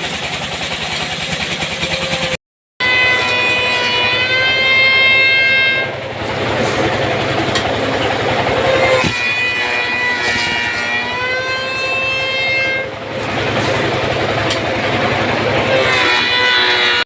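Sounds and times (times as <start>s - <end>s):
high machine whine: 0.0s - 17.0s
low motor hum: 0.0s - 17.0s
rough noisy machining: 0.0s - 17.0s.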